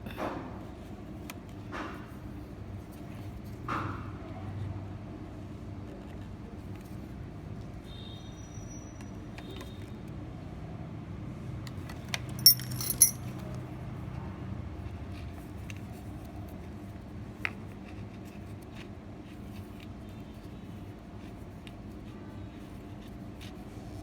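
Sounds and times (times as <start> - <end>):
bright metallic clinks: 12.4 - 13.3
small hard objects clinking: 12.4 - 13.3.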